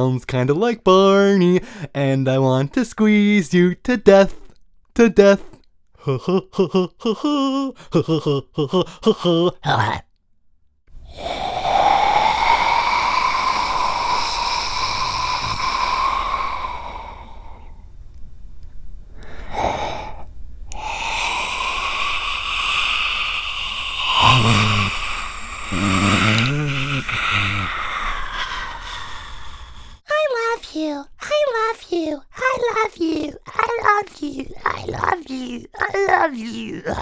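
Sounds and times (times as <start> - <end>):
man rasping breathy exhalations: 11.1 - 17.8, 19.2 - 30.0
man growling: 20.8 - 30.0, 33.1 - 37.0.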